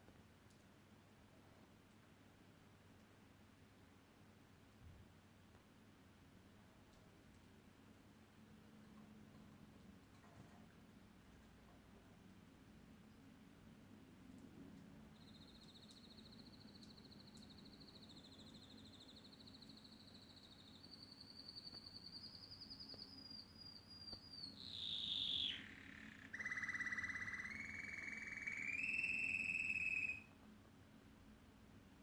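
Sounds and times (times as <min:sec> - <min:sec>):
canary singing trills: 0:15.2 - 0:30.3.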